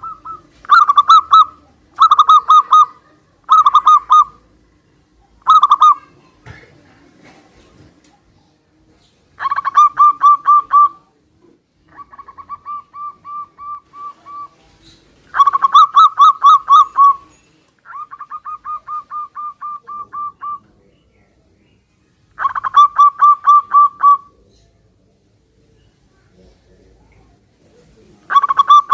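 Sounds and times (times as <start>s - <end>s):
doves cooing: 0.0s - 4.6s, 5.3s - 6.2s, 9.4s - 11.2s, 11.8s - 20.8s, 22.4s - 24.8s, 27.6s - 28.9s.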